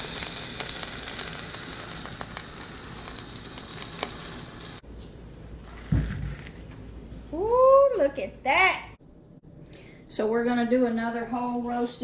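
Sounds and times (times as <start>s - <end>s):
fat sizzling and crackling: 0.0s - 4.8s.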